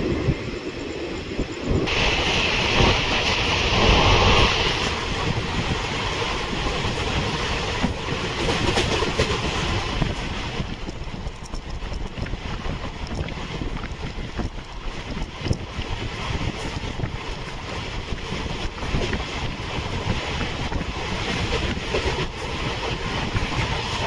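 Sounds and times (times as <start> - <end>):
train rumbling on rails: 0.0 - 24.0
rushing hiss: 1.9 - 6.1.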